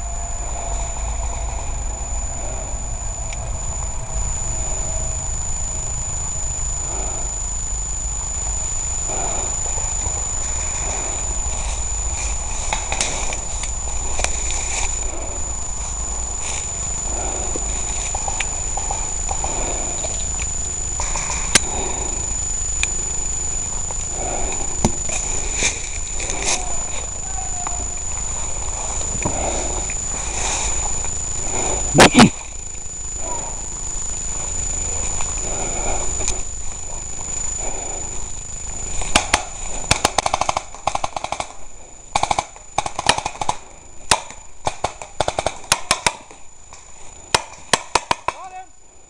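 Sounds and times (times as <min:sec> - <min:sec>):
low rumbling on microphone: 0:00.0 - 0:39.8
rustling of movement: 0:00.0 - 0:40.8
high-pitched whine: 0:00.0 - 0:49.0
sharp clicks: 0:12.6 - 0:15.1, 0:17.5 - 0:21.7, 0:39.0 - 0:48.4
airsoft guns firing: 0:39.1 - 0:46.3, 0:47.3 - 0:48.5.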